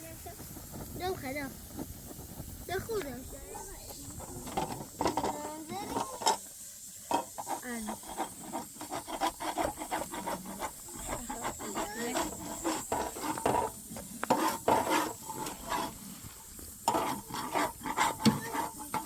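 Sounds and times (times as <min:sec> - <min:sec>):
scraping and rubbing strokes: 0:00.0 - 0:19.0.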